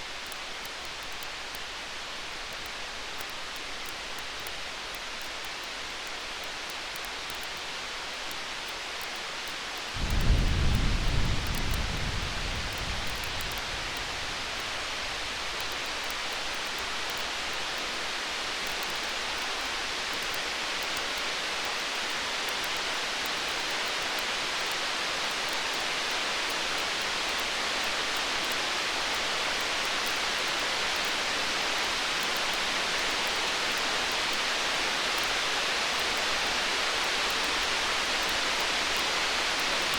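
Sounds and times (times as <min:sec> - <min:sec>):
steady rain hiss: 0:00.0 - 0:39.9
campfire crackling: 0:08.3 - 0:21.0
distant thunder rumble: 0:10.0 - 0:15.7.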